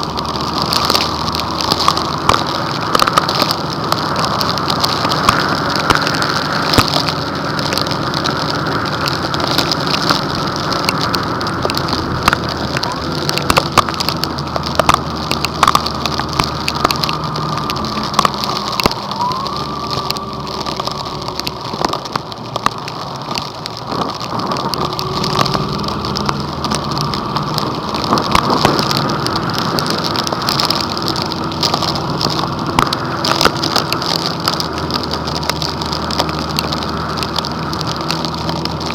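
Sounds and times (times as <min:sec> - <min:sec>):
engine and road hum: 0:00.0 - 0:38.9
heavy rain on a car: 0:00.0 - 0:38.9.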